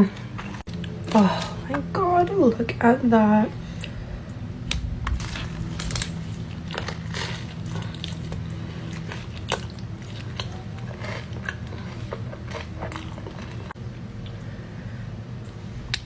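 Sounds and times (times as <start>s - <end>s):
person chewing food: 0.0s - 1.8s, 3.5s - 14.6s
low steady hum: 0.0s - 16.0s
light crunches: 4.7s - 13.7s.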